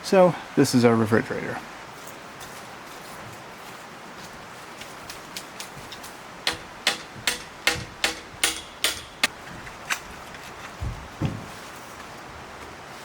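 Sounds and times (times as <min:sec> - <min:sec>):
sharp ringing strikes: 0:06.5 - 0:09.3.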